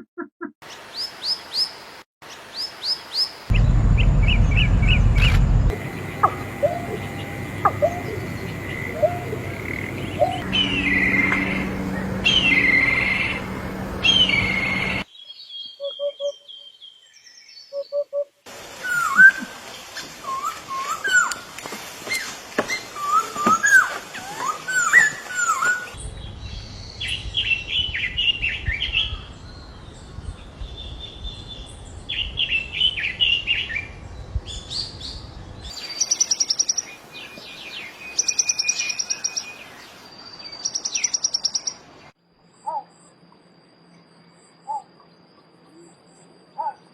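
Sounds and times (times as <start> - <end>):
rapid high bird trill: 5.7 - 15.0.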